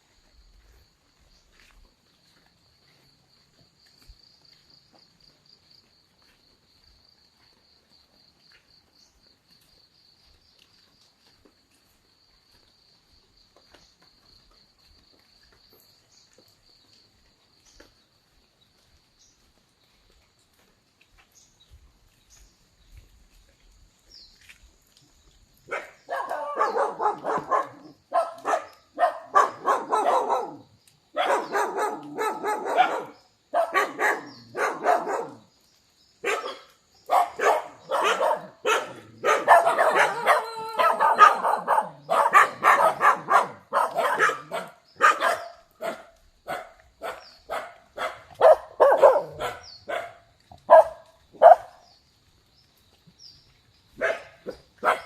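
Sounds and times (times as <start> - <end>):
dog barking: 25.7 - 35.5, 36.2 - 51.8, 54.0 - 55.0.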